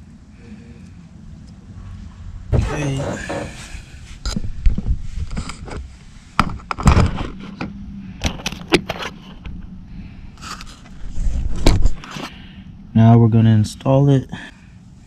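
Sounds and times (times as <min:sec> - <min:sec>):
metal scraping: 0:02.5 - 0:03.9.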